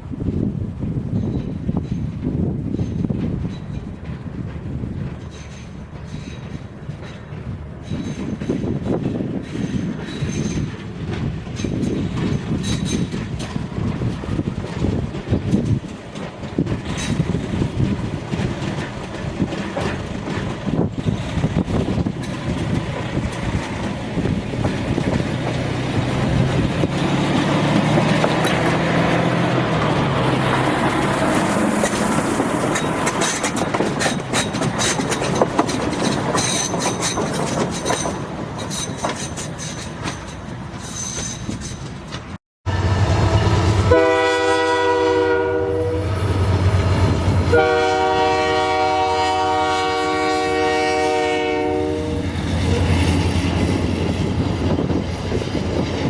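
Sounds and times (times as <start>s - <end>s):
train engine rumble: 0.0s - 56.0s
train cars clattering over rails: 0.2s - 42.4s
faint high wheel squeal: 5.2s - 8.6s, 9.4s - 10.7s, 37.9s - 42.0s.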